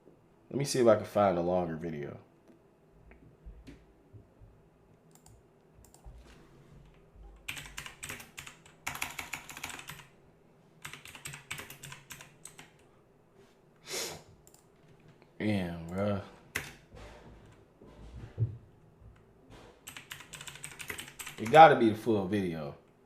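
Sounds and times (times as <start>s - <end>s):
keyboard typing: 5.1s - 6.2s, 6.8s - 10.1s, 10.8s - 12.8s, 15.9s - 16.8s, 19.8s - 21.7s.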